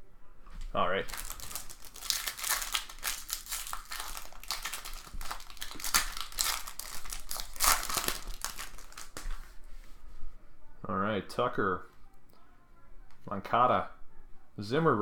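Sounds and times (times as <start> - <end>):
foil wrapper crinkling: 1.0 - 9.3.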